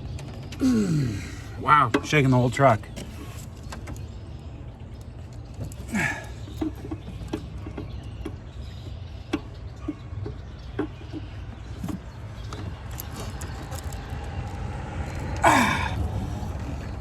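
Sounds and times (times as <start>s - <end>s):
person grunting: 0.6s - 1.4s, 15.4s - 16.0s.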